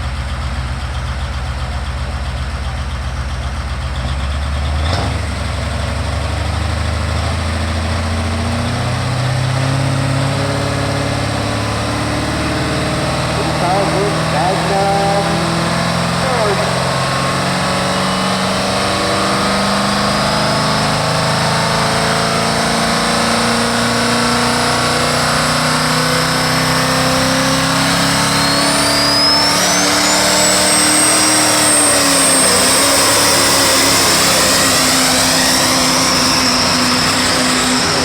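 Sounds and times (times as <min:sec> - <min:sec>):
diesel truck engine under load: 0:00.0 - 0:26.9
high whine: 0:10.9 - 0:21.7.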